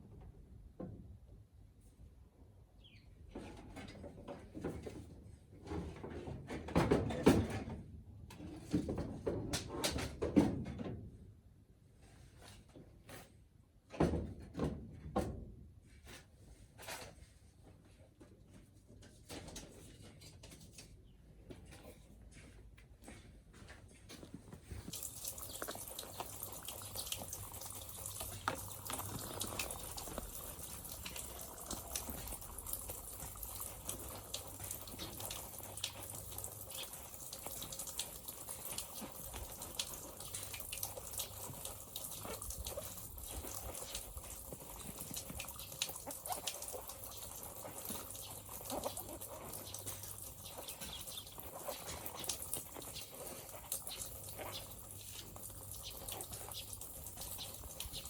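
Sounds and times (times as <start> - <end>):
water running from a tap: 24.9 - 58.0.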